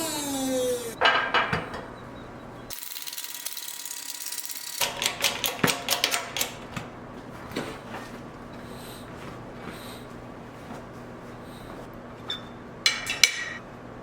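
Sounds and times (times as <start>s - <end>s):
mechanical clicks and knocks: 4.7s - 6.6s.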